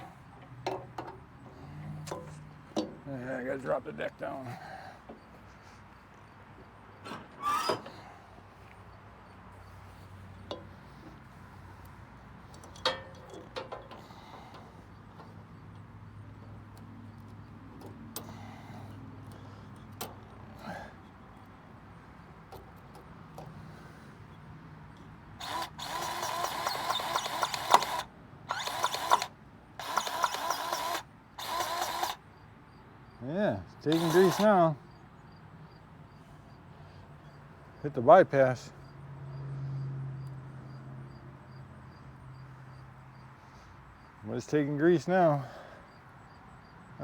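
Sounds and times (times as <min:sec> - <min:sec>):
mower deck creaking scrape: 0:07.0 - 0:08.1
grease gun motor whining: 0:07.4 - 0:08.1, 0:25.4 - 0:32.2, 0:33.8 - 0:34.7.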